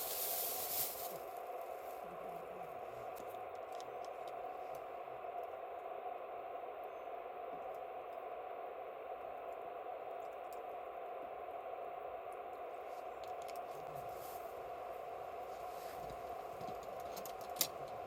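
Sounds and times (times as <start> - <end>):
campfire crackling: 0.0 - 6.0.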